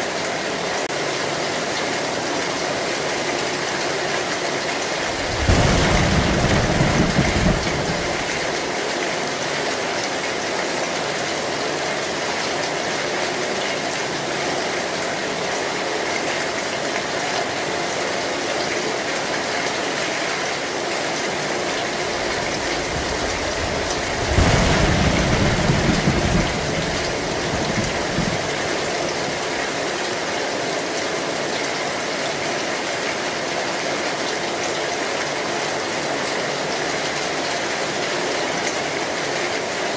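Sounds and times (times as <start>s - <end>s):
heavy rain on a tin roof: 0.0s - 39.9s
low thunder rumbles: 4.9s - 8.8s, 21.7s - 29.6s.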